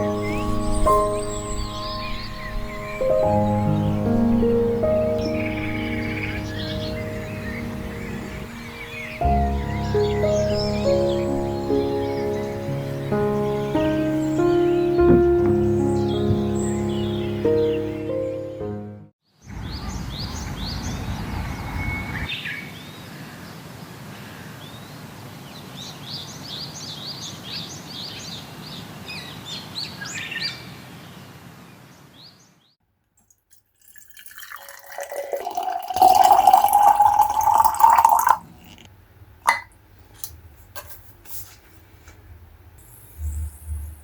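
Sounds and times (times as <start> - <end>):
small birds chirping: 0.0 - 18.4, 19.3 - 23.6.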